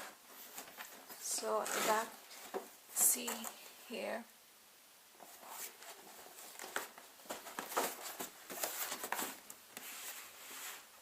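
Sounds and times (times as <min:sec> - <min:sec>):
cardboard box rustling and scraping: 0:00.4 - 0:02.2, 0:05.4 - 0:10.9.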